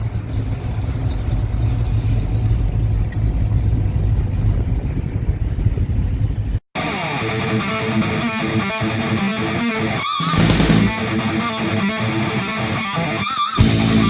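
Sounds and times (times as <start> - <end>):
car engine rumbling: 0.0 - 6.6, 13.6 - 14.0.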